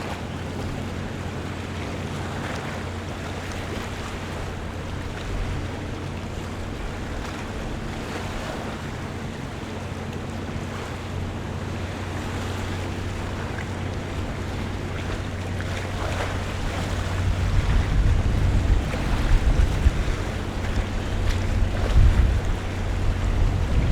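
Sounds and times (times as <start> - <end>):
low engine hum: 0.0 - 23.9
water lapping: 0.0 - 23.9
wind on microphone: 11.4 - 23.9.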